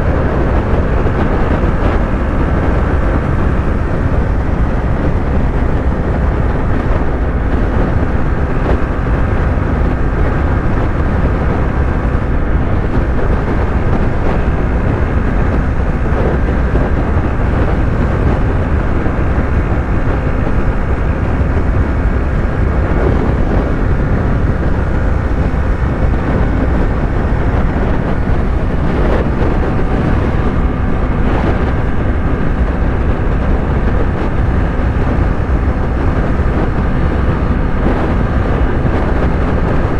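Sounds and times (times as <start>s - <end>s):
motorcycle engine cruising: 0.0s - 39.9s
wind rush over microphone: 0.0s - 39.9s.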